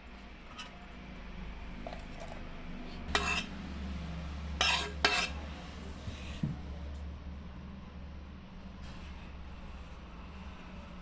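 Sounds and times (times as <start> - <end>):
utensil scraping and clinking: 0.4 - 0.8, 1.8 - 3.6, 4.6 - 6.4.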